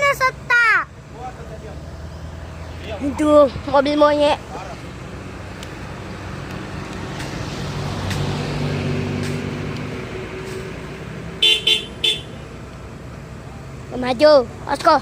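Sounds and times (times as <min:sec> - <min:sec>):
vehicle engine droning: 0:00.0 - 0:15.0
vehicle horn toots: 0:11.4 - 0:12.4.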